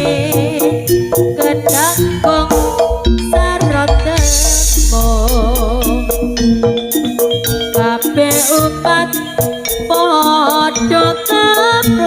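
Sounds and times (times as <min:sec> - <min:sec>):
person singing: 0:00.0 - 0:06.5
drum hits: 0:01.7 - 0:07.4
struck notes: 0:01.7 - 0:07.6
wavering held note: 0:01.9 - 0:07.1.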